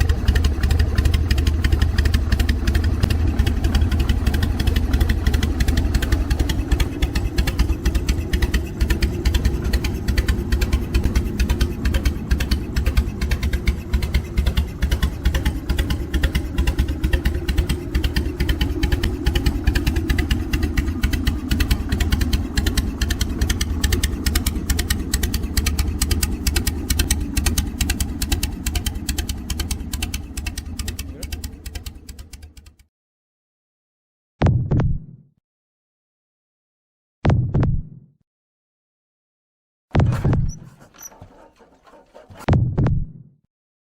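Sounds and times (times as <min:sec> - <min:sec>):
motorcycle engine idling: 0:00.0 - 0:32.8.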